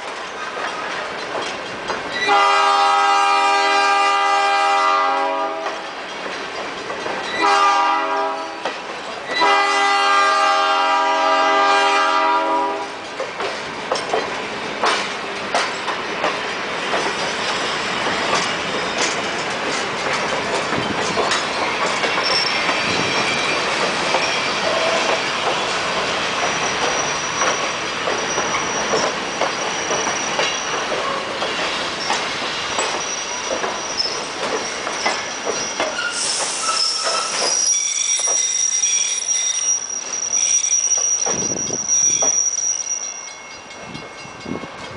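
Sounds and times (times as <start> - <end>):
wheels clicking over rail joints: 0.0 - 2.4, 5.6 - 7.6, 13.0 - 36.1
train cars rolling on rails: 0.0 - 44.9
wheels squealing: 21.6 - 43.6.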